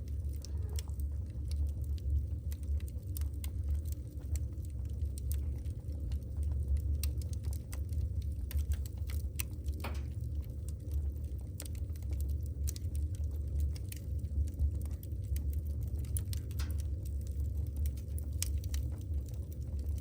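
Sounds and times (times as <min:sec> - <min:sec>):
fire low rumble: 0:00.0 - 0:20.0
logs crackling and popping: 0:00.0 - 0:20.0.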